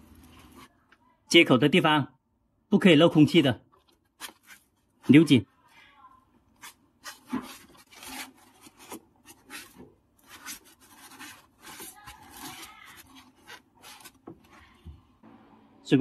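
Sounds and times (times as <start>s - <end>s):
hose rubbing and scraping: 0.0s - 0.7s, 6.5s - 15.2s.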